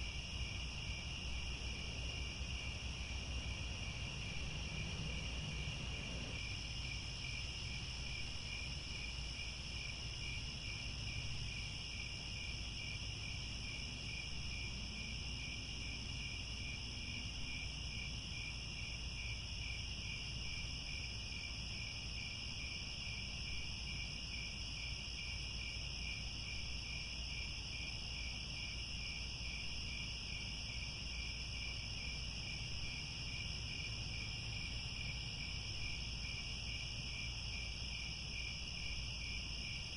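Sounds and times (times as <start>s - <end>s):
faint low rumble: 0.0s - 7.9s
crickets chirping: 0.0s - 39.9s.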